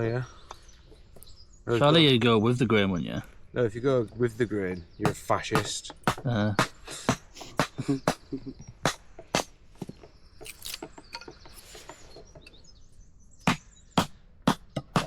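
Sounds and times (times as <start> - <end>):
axe chopping firewood: 5.1 - 8.2.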